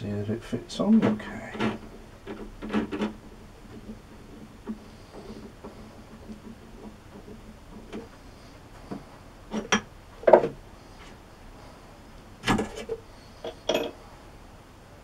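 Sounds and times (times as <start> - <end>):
metal parts clinking: 13.4 - 14.0.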